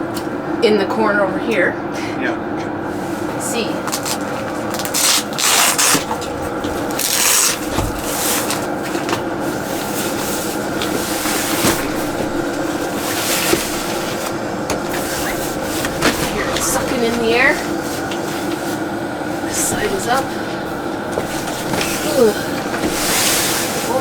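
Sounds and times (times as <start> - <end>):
air heater humming: 0.0 - 24.0
camping gear rubbing and scraping: 3.9 - 18.8.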